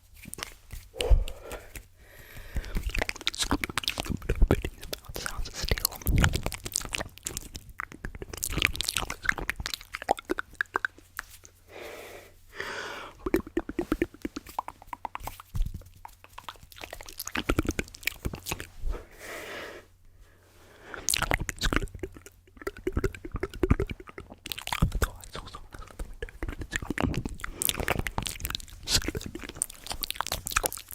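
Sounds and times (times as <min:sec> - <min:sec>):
wet mouth clicks and smacks: 0:00.2 - 0:11.6, 0:13.1 - 0:18.8, 0:20.9 - 0:30.9
breathy hisses: 0:11.7 - 0:13.2, 0:18.9 - 0:21.1.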